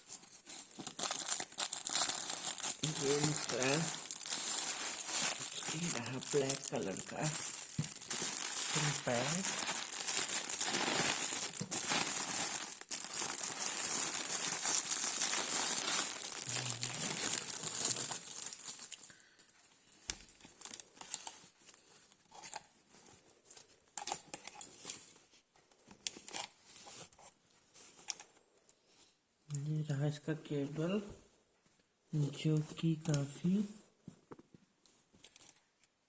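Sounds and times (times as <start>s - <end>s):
plastic packaging crinkling: 0.0s - 22.7s.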